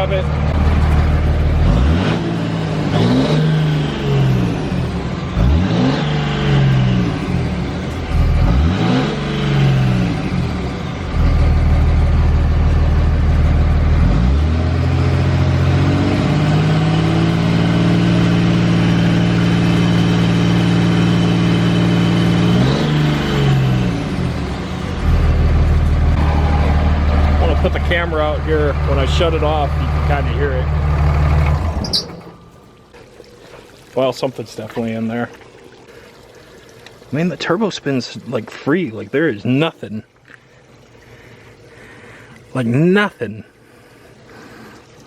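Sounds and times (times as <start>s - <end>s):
diesel truck engine revving: 0.0s - 32.7s.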